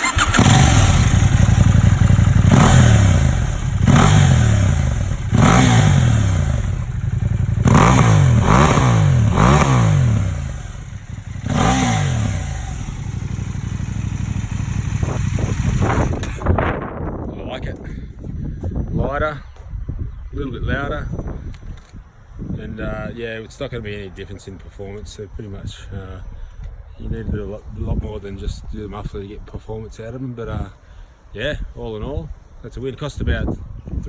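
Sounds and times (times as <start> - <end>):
motorcycle engine revving and idling: 0.0 - 16.6.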